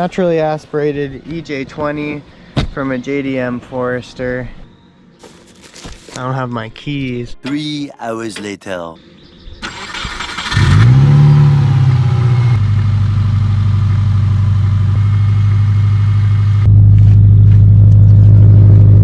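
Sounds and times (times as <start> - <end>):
car engine idling: 9.2 - 19.0.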